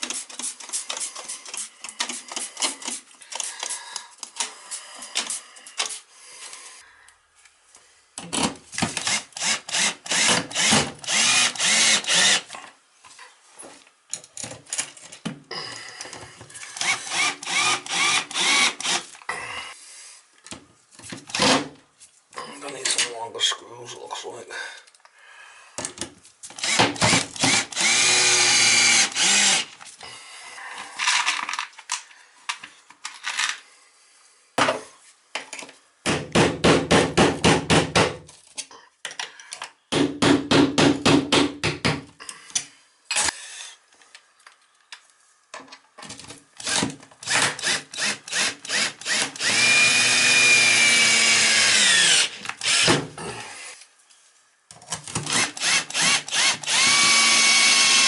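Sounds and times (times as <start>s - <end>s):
power drill motor whining: 9.0s - 12.4s, 16.7s - 19.0s, 26.6s - 29.7s, 46.6s - 52.9s, 55.3s - 58.0s.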